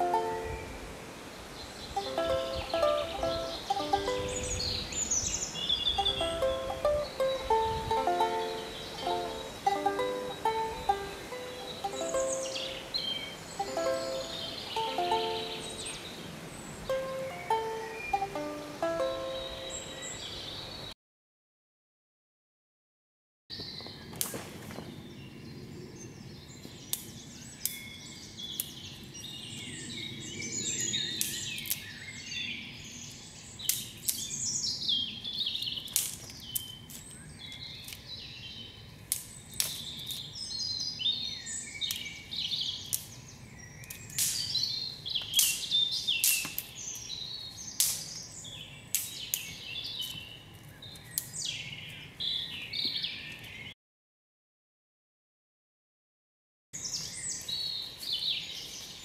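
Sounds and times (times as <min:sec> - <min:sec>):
woodland birds singing: 0:00.0 - 0:20.9, 0:23.5 - 0:53.8, 0:56.8 - 0:59.0.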